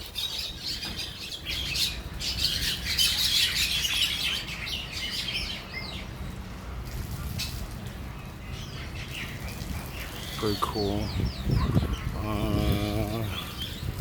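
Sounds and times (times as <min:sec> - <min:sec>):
terns chattering and squawking: 0:07.1 - 0:14.0.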